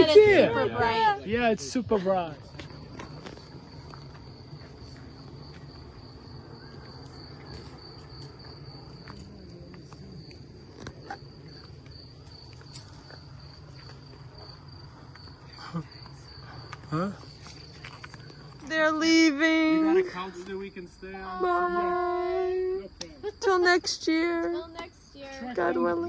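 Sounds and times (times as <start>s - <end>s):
crickets chirping: 0.0s - 26.0s
low background rumble: 1.8s - 18.9s.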